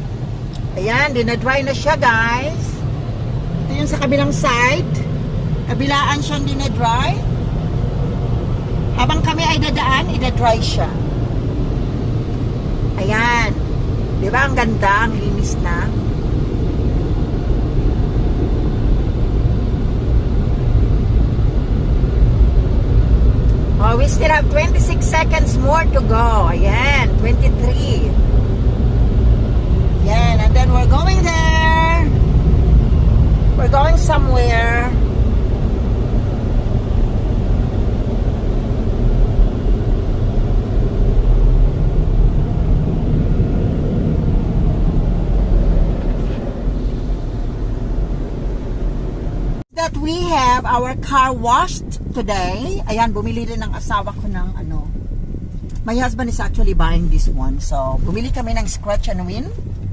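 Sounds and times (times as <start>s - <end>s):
car wash blowers rumbling: 0.0s - 59.9s.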